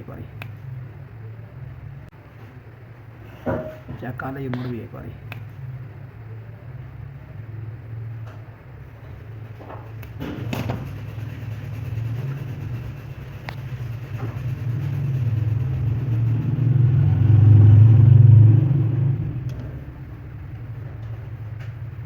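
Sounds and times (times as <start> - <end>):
electric water pump humming: 6.6 - 22.0.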